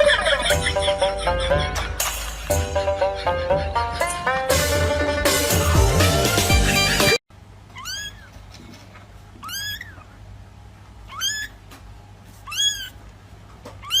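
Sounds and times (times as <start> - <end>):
cat meowing: 7.7 - 8.4, 9.4 - 10.1, 11.1 - 11.6, 12.4 - 13.0, 13.8 - 14.0.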